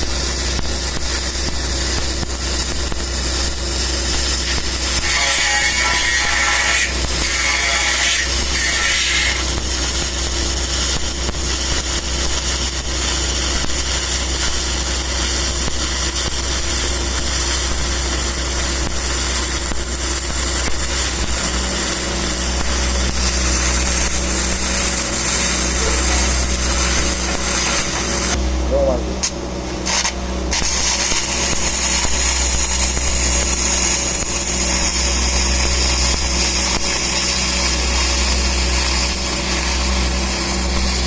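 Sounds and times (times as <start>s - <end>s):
steady low hum: 0.0s - 41.0s
welding arc crackling and hissing: 0.0s - 41.0s.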